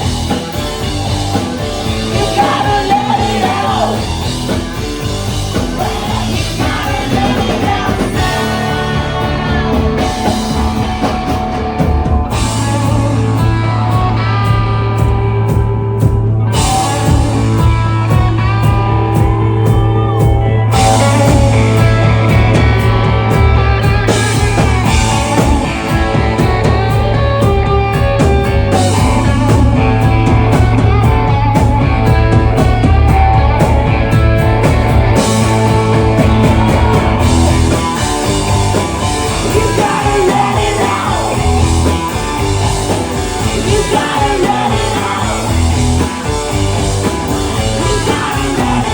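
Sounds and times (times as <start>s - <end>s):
drum kit: 0.0s - 48.9s
electric guitar: 0.0s - 48.9s.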